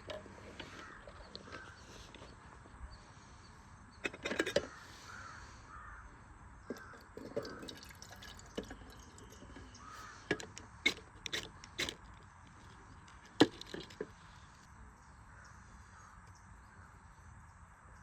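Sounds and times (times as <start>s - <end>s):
crows cawing: 0.5s - 2.2s, 4.5s - 7.9s, 9.4s - 10.5s, 15.3s - 16.9s.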